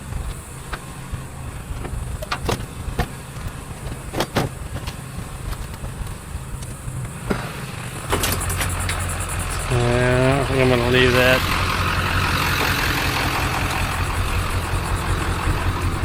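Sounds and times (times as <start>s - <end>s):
vehicle engine running: 0.0s - 16.0s
sharp clicks and knocks: 1.7s - 7.5s, 8.1s - 9.7s.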